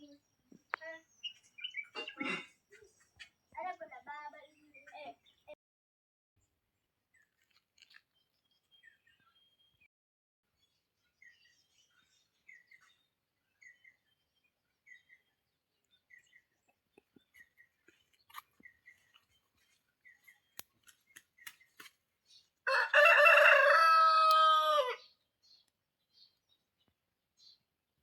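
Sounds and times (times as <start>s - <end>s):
small bird chirping: 0.0s - 5.6s, 7.1s - 9.9s, 10.6s - 22.6s, 24.3s - 27.7s
rooster crowing: 22.7s - 25.1s.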